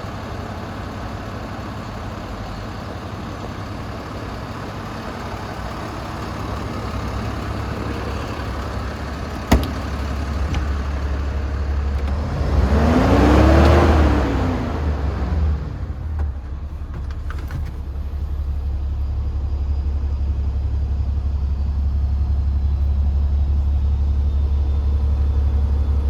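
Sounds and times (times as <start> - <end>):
diesel truck engine idling: 0.0 - 26.0
engine revving: 7.4 - 16.0.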